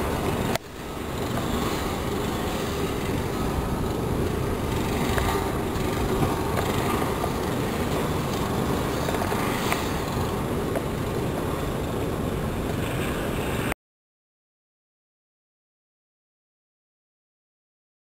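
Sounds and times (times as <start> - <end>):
wind buffeting microphone: 0.0 - 13.7.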